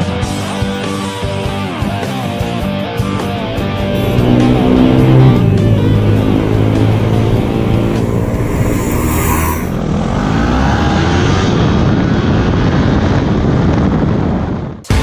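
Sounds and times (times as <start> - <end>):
background music: 0.0 - 9.7
motorcycle engine accelerating: 2.0 - 13.4.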